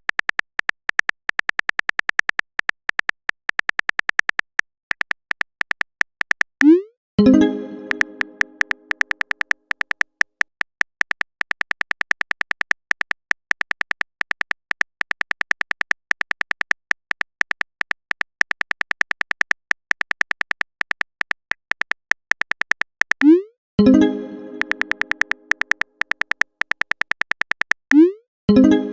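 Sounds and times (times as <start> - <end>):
typing clicks: 0.0 - 23.5, 24.3 - 28.2
notification chime: 6.6 - 8.9, 23.8 - 25.5, 28.0 - 28.9.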